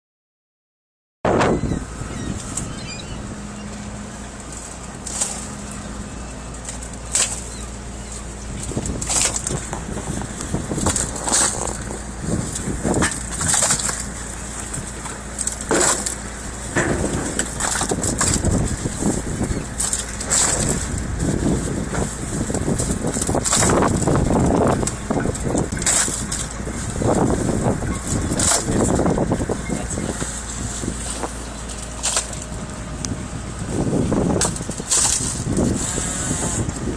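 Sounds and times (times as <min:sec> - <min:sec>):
boat engine running: 0:01.3 - 0:36.9
steady low hum: 0:01.3 - 0:36.9
fish slapping: 0:04.5 - 0:29.1, 0:30.0 - 0:35.8
fish landing with wet slaps: 0:13.1 - 0:14.1, 0:32.0 - 0:32.5.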